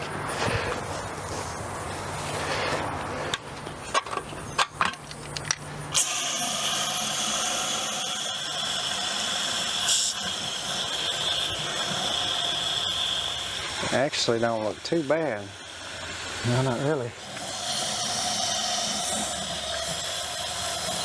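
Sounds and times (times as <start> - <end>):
handling knocks and clicks: 3.3 - 5.6
hose water spraying: 5.9 - 21.0.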